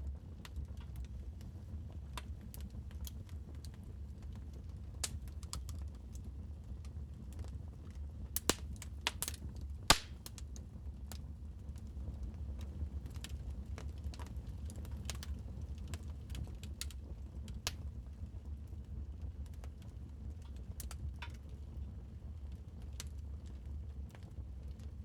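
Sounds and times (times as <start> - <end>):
fire low rumble: 0.0 - 25.0
wood fire pops and clicks: 5.0 - 6.2, 8.4 - 10.6, 12.6 - 17.9.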